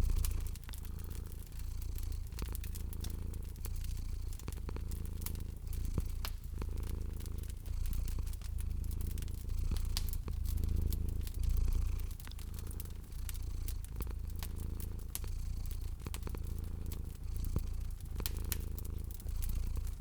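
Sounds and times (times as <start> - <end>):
cat purring: 0.0 - 20.0
fire crackling and popping: 0.0 - 20.0.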